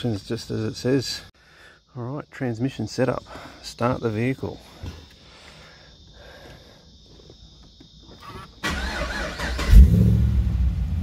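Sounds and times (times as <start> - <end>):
starter motor cranking: 8.2 - 9.8
car engine revving and idling: 9.4 - 11.0.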